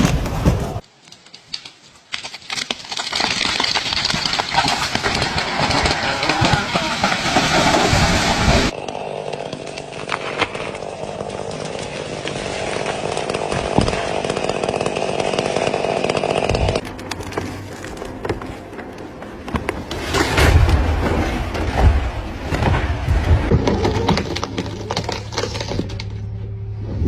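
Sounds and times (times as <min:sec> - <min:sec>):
chainsaw cutting wood: 0:03.2 - 0:16.8.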